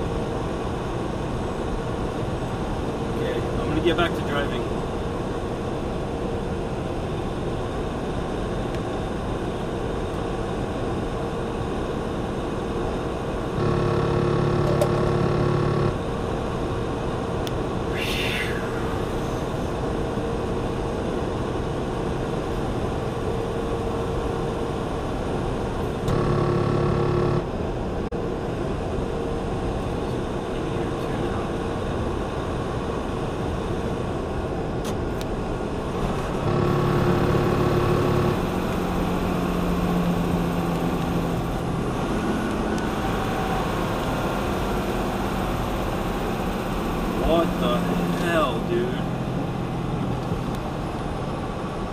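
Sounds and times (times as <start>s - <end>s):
faint steady hum: 0.0s - 34.6s
engine and road drone in truck cab: 0.0s - 51.9s
electronic tone: 13.6s - 16.0s, 26.1s - 27.5s, 36.4s - 39.1s.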